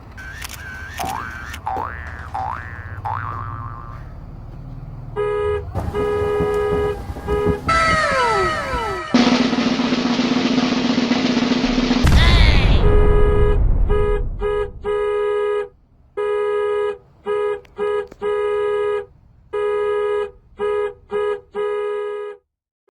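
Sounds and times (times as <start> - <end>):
buzzy electronic horn blasts: 0.7 - 4.2, 5.1 - 9.5, 12.8 - 22.4
loud noisy burst: 5.8 - 15.2.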